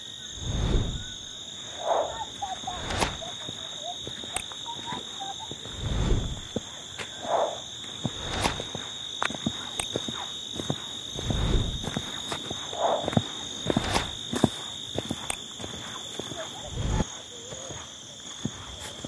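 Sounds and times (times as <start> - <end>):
frogs croaking: 0.0 - 19.0
high-pitched insect drone: 0.0 - 19.0
low rumbles: 0.4 - 1.2, 5.7 - 6.6, 11.2 - 11.9
scattered clicks: 4.2 - 5.5, 15.1 - 15.5.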